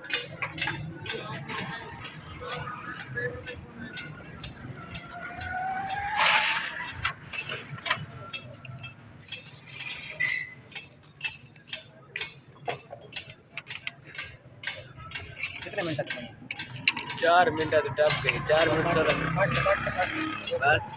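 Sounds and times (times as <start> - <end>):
metal parts and tools clinking: 1.6 - 17.2.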